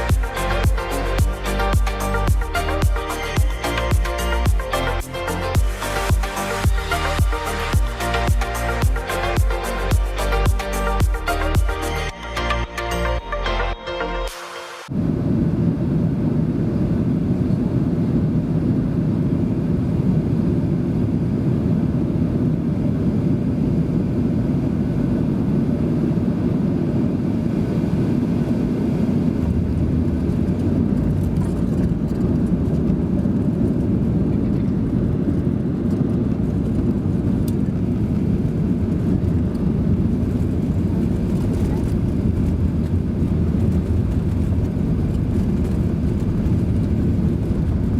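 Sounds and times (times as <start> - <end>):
jet engine drone: 13.8 - 47.9.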